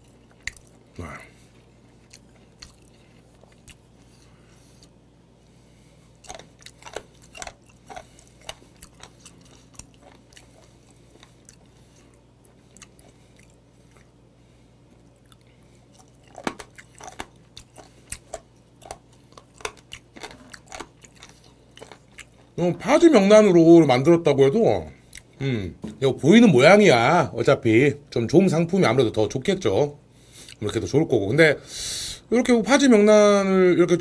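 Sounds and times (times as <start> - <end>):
wet crunchy chewing: 0.0 - 14.2, 15.0 - 22.6.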